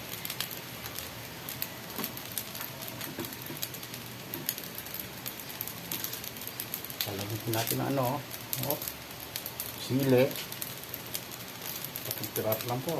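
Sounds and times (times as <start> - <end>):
food sizzling in a pan: 0.0 - 12.9.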